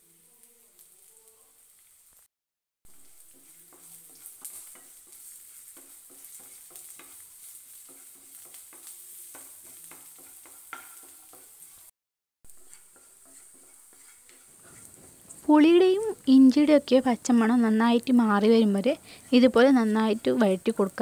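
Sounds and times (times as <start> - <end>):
faint sizzle of frying: 0.0 - 2.3, 2.9 - 11.9, 12.5 - 21.0
wooden spatula scraping a pan: 2.9 - 11.9, 12.5 - 15.8.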